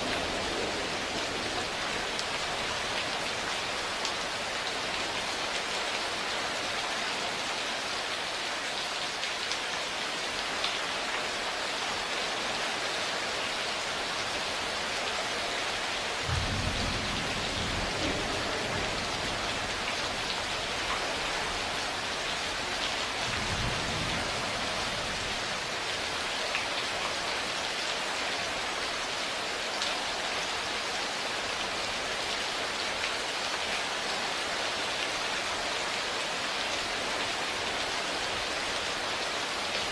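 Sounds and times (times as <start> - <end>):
low rumbles of thunder: 0.0 - 2.9, 16.2 - 20.8, 23.2 - 25.4
steady rain: 0.0 - 39.9.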